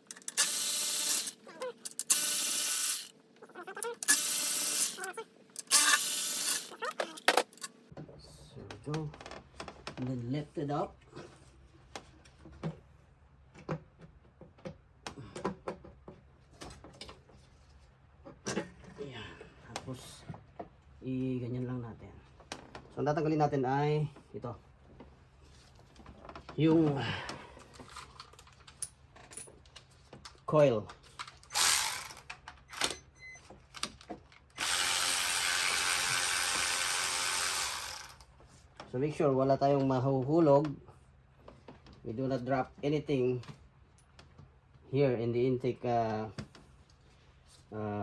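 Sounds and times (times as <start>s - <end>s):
power tool running: 0.1s - 3.1s, 4.0s - 7.6s, 31.5s - 33.0s, 34.6s - 38.3s
clicks and knocks of engine parts: 6.9s - 8.1s.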